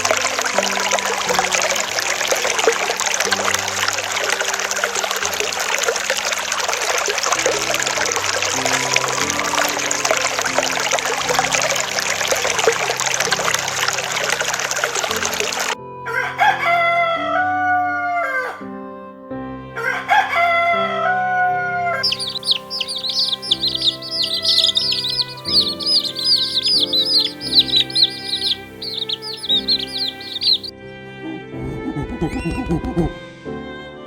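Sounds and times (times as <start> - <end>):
rushing water: 0.0 - 15.8, 22.0 - 30.7
background music: 0.0 - 34.0
rooster crowing: 16.1 - 18.7, 19.8 - 30.7
chicks chirping: 19.8 - 30.7, 31.6 - 33.2.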